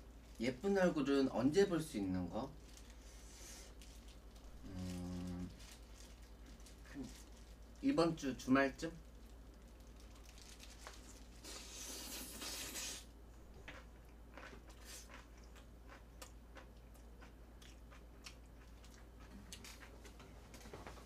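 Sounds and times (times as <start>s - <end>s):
crunchy chewing: 2.6s - 7.8s, 13.6s - 20.7s.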